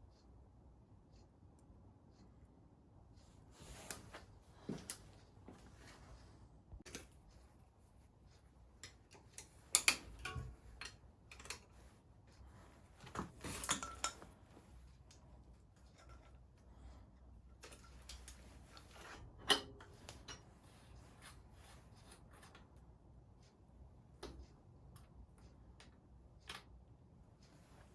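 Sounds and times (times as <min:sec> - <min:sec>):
light metallic clicks and clinks: 0:08.8 - 0:12.0, 0:13.0 - 0:16.8.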